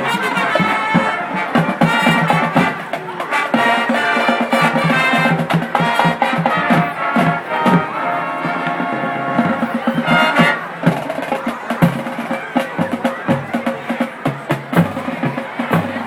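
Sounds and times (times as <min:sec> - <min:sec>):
brass section playing chords: 0:00.0 - 0:11.0.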